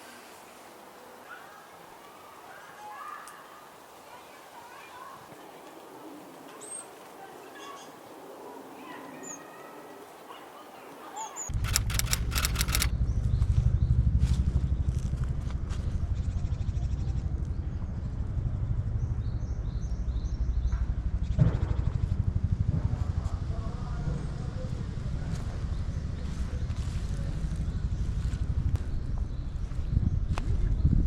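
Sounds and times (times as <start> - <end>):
cluster of clicks: 11.5 - 12.9.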